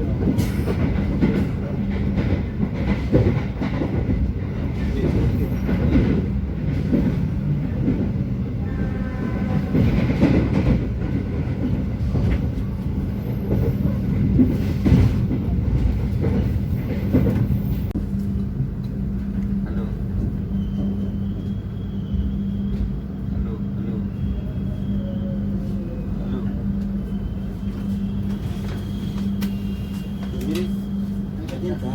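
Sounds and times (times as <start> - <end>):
train rumbling on rails: 0.0 - 31.9.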